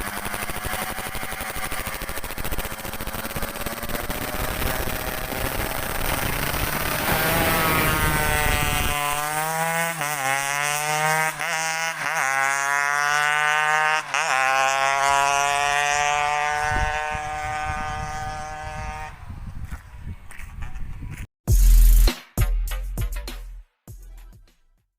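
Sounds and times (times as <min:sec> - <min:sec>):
two-stroke engine revving hard: 0:00.0 - 0:19.3.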